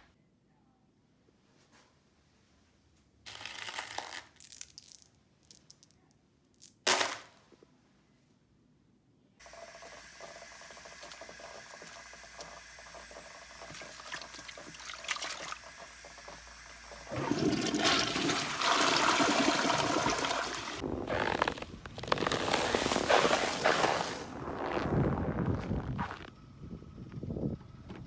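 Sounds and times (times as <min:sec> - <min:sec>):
rushing water: 0:09.4 - 0:20.8.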